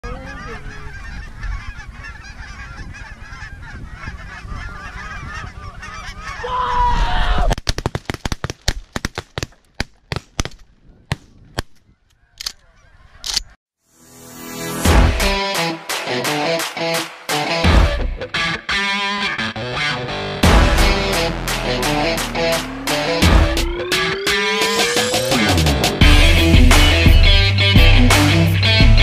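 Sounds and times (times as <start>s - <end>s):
flock of geese honking: 0.0s - 6.7s.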